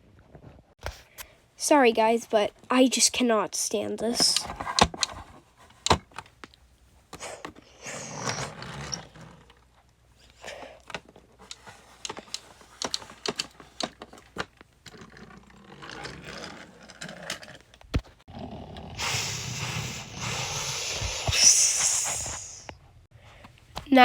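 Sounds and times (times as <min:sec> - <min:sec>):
toy trains clicking and rattling: 0:03.6 - 0:04.5, 0:11.4 - 0:17.6
loud steady hiss: 0:19.0 - 0:22.8.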